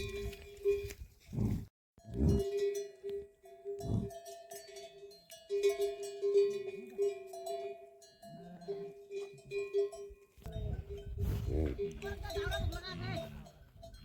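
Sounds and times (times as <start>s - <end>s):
livestock bells clanking: 2.0s - 14.0s.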